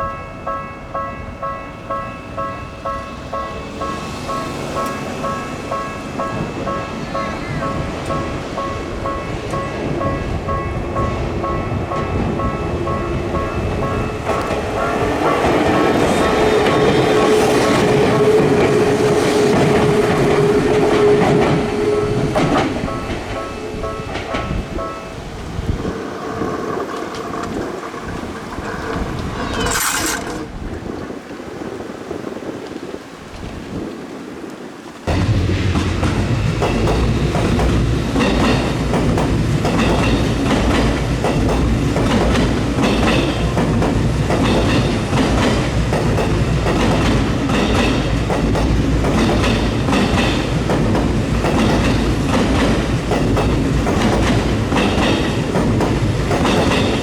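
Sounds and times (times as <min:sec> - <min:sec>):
electric train rumbling by: 0:00.0 - 0:57.0
wheels clacking over rail joints: 0:11.4 - 0:31.4, 0:35.1 - 0:57.0.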